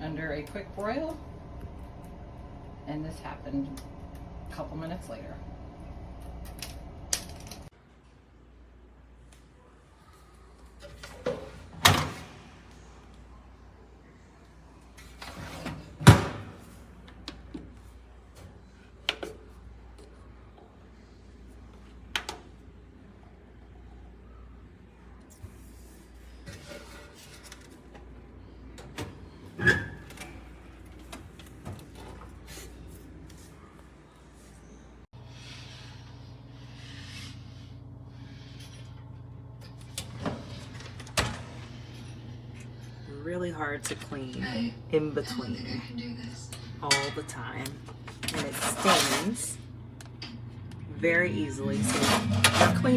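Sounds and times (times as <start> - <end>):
low mechanical hum: 0.0 - 52.9
door sliding scrape: 48.3 - 49.5, 51.7 - 52.9.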